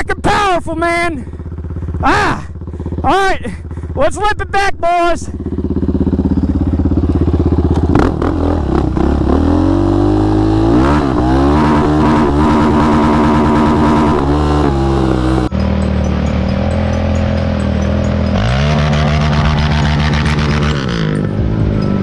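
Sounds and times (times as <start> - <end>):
quad bike engine revving: 1.0 - 4.0, 5.3 - 22.0.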